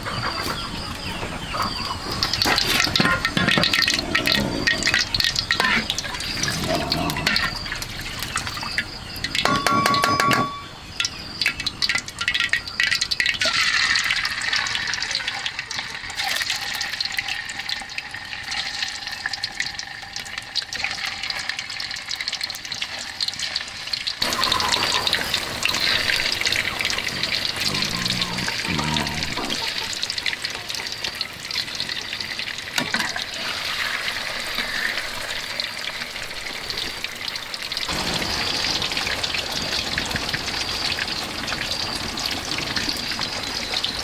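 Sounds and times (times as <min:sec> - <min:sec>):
water sloshing and trickling: 0:00.0 - 0:15.2, 0:24.2 - 0:44.0.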